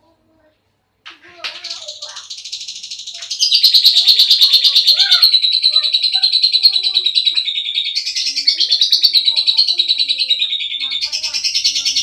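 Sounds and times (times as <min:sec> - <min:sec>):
lovebird chattering trill: 0:01.3 - 0:12.0.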